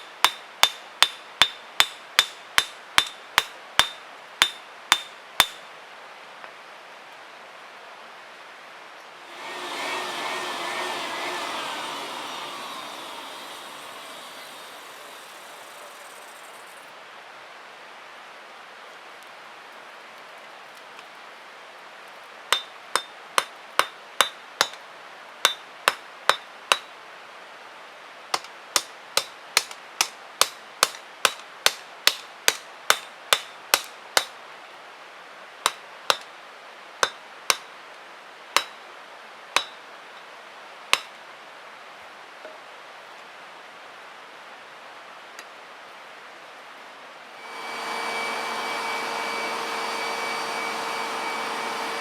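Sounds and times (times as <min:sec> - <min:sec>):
hammer striking metal on anvil: 0:00.0 - 0:05.6, 0:39.6 - 0:39.8.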